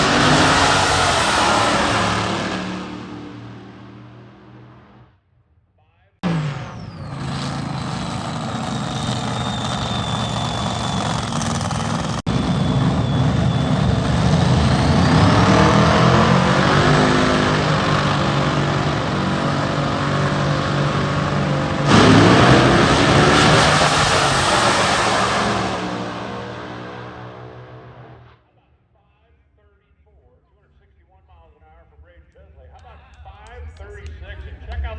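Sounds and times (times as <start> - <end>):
race car engine: 0.0 - 5.1, 6.2 - 28.4.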